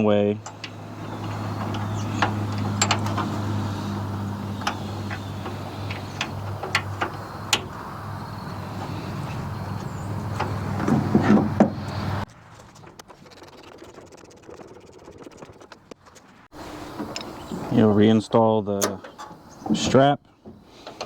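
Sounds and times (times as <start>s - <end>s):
wrench and bolt clinking: 0.4s - 3.2s.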